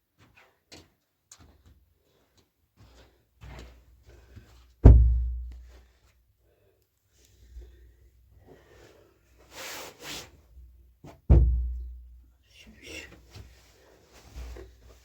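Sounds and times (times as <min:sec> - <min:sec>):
heavy thump with deep boom: 0:04.8 - 0:05.5, 0:11.3 - 0:11.9.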